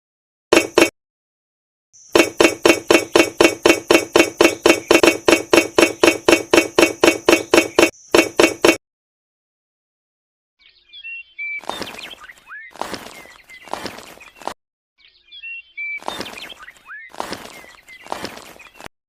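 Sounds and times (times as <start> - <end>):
rapid striking: 0.5 - 0.9, 2.2 - 8.8.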